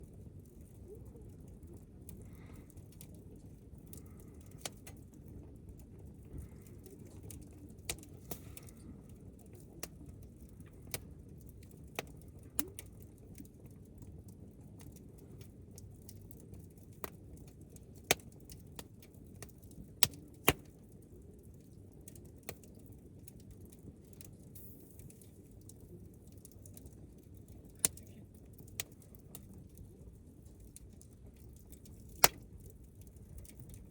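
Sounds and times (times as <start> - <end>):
campfire crackling: 0.0 - 33.9.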